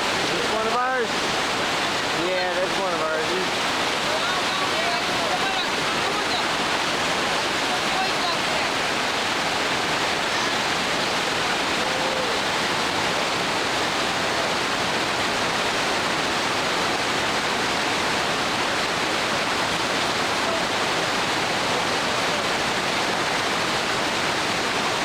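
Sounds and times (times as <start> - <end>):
water rushing over rocks: 0.0 - 25.0.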